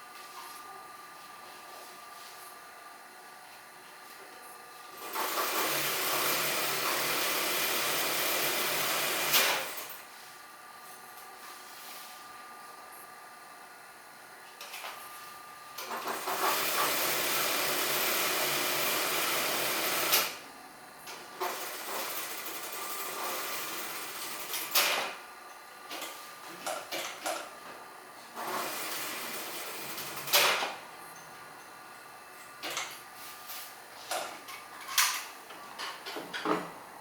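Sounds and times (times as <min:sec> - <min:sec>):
electric sewing machine stitching: 0:04.9 - 0:10.0, 0:15.8 - 0:20.4, 0:21.1 - 0:25.2, 0:28.4 - 0:30.8.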